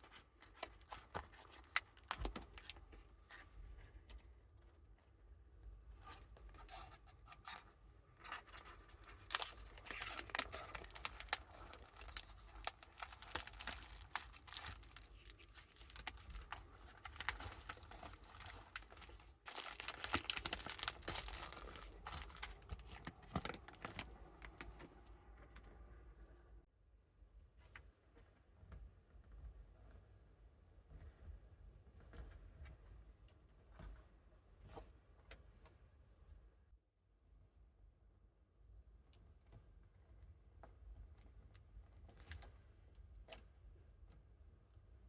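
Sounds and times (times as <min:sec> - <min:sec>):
packaging crinkling and tearing: 0:00.1 - 0:03.0, 0:08.2 - 0:24.7.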